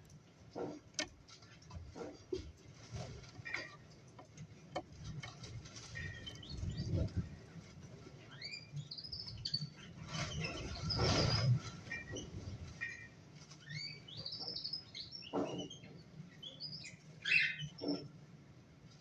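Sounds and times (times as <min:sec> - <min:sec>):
light clicks and taps: 0:00.0 - 0:05.9
cockatiels chirping: 0:16.4 - 0:18.0.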